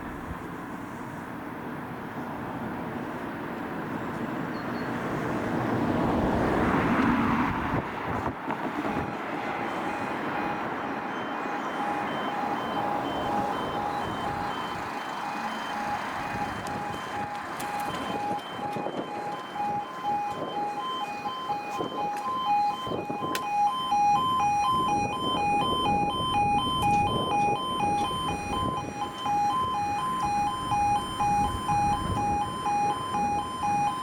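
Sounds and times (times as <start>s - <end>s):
road vehicle passing: 0.0s - 34.0s
pulsing crossing alarm tones: 8.8s - 34.0s.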